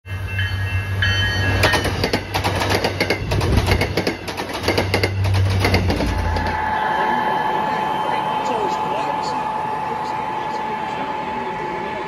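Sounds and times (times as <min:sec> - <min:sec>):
train wheels clacking over rail joints: 0:01.6 - 0:06.6
high steady tones: 0:04.2 - 0:12.0
steady low hum: 0:05.2 - 0:12.0.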